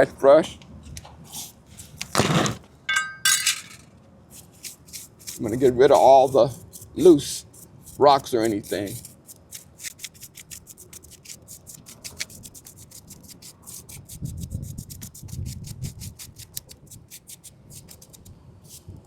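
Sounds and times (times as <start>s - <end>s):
scratch brush scrubbing concrete: 4.3s - 19.0s.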